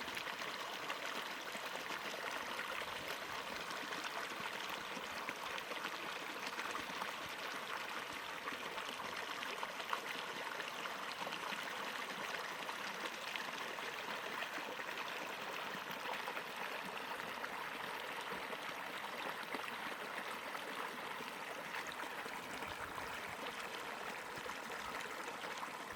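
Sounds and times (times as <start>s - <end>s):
stream running over rocks: 0.0s - 25.9s.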